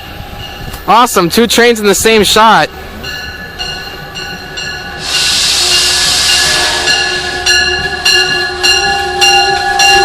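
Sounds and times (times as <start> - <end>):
locomotive bell ringing: 0.0 - 1.9, 2.6 - 10.0
air hiss from train: 4.9 - 7.7.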